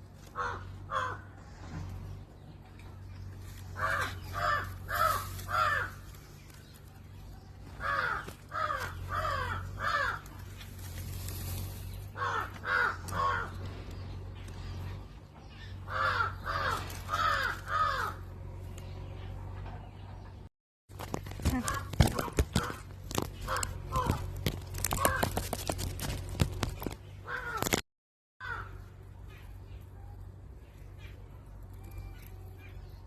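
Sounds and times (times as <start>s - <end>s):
steady low hum: 0.0s - 27.5s
bird calling harshly: 21.4s - 26.2s.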